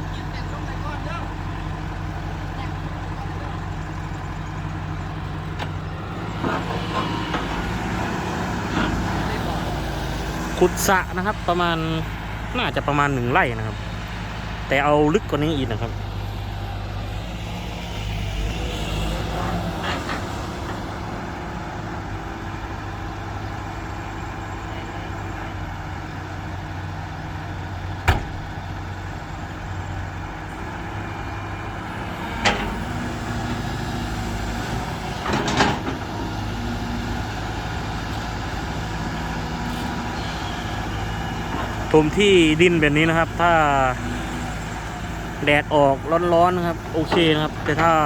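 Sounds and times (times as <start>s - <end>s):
heavy diesel engines running: 0.0s - 48.0s
sharp knocks: 28.0s - 28.5s.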